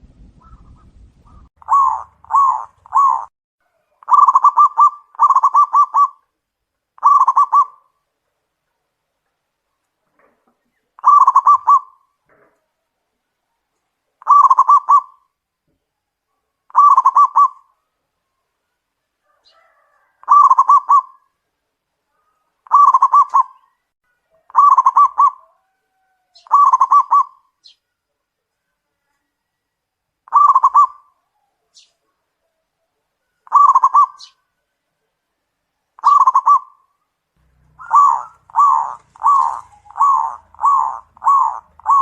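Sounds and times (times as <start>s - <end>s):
dove cooing: 0.4s - 6.3s, 7.0s - 7.9s, 11.0s - 12.1s, 14.2s - 15.2s, 16.7s - 17.7s, 19.2s - 21.4s, 22.2s - 23.8s, 24.4s - 27.5s, 30.3s - 31.9s, 33.4s - 34.4s, 36.0s - 36.8s, 37.5s - 42.0s.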